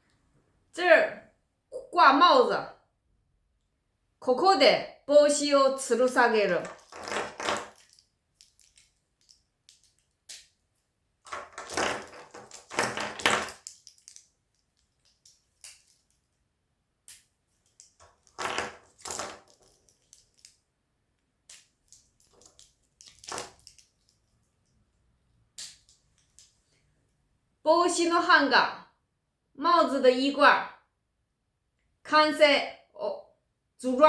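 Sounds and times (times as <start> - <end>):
crinkling rustle: 6.6 - 10.2, 11.3 - 16.3, 17.6 - 20.6, 21.5 - 24.3.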